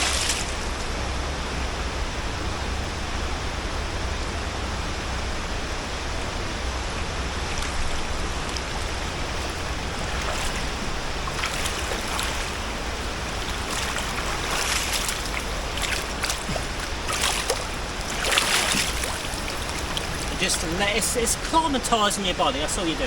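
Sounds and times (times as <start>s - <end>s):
water splashes: 0.0s - 1.0s, 7.2s - 23.0s
river water flowing: 0.0s - 23.0s.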